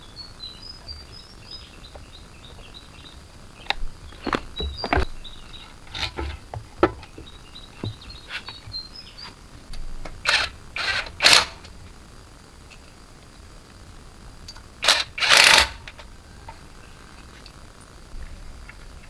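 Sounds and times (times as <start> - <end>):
faint bird chirps: 0.0 - 5.9
small hard objects clicking: 3.6 - 5.1
scraping or rustling: 3.7 - 7.2.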